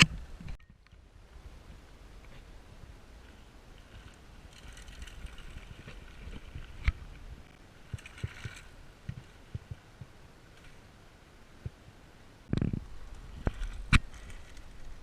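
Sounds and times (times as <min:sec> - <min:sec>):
bike tyres rumbling on dirt: 0:03.2 - 0:10.8.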